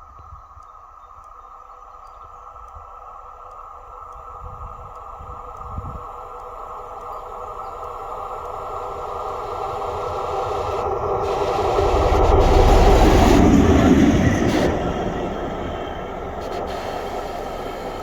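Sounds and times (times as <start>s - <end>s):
diesel locomotive passing: 4.2s - 18.0s.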